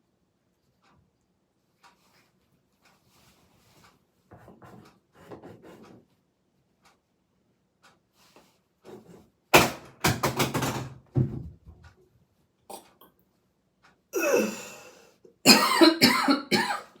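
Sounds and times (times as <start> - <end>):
person exhaling forcefully: 14.2 - 15.1
person gasping breaths: 14.2 - 15.3
person coughing: 14.2 - 17.0.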